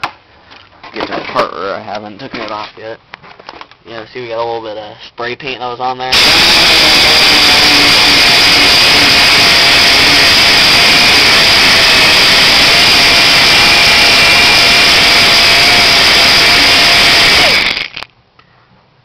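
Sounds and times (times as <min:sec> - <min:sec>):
air sander hissing and whining: 0:06.1 - 0:18.1.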